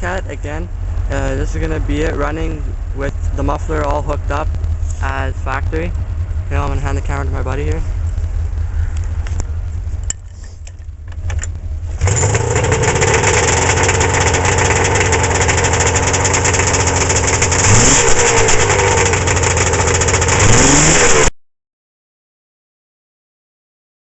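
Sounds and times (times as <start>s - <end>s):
snowmobile engine running: 0.0s - 10.5s, 11.9s - 21.3s
snowmobile engine revving: 12.0s - 21.3s.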